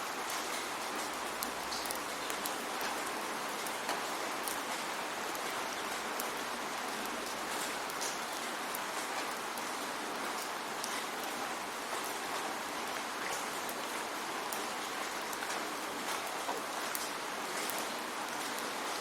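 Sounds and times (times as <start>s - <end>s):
steady rainfall: 0.0s - 19.0s.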